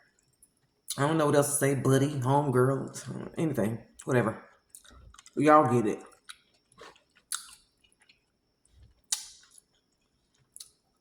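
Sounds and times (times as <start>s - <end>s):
person chewing food: 3.9s - 5.4s, 6.0s - 11.0s
mouth clicks and smacks: 4.0s - 5.4s, 6.0s - 8.2s, 8.8s - 9.8s, 10.4s - 10.8s.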